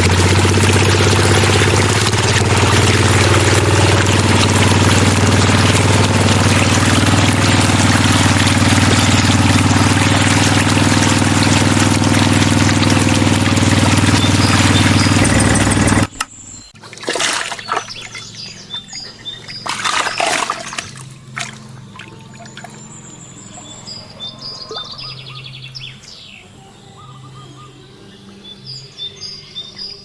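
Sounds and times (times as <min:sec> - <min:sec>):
water pouring and splashing: 0:00.0 - 0:16.2, 0:16.8 - 0:22.9
small pump engine running: 0:00.0 - 0:24.3
birds chirping: 0:00.0 - 0:30.0.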